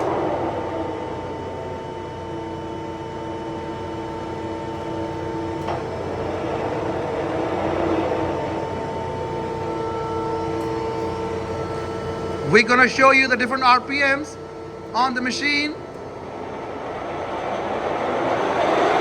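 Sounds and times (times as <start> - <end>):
lathe humming and whining: 0.0 - 19.0.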